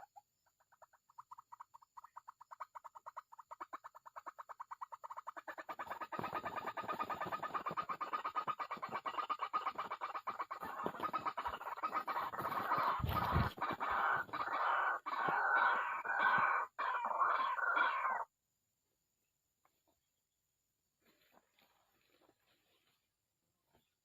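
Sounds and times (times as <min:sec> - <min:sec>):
bird harsh repeated calls: 0:04.2 - 0:18.3.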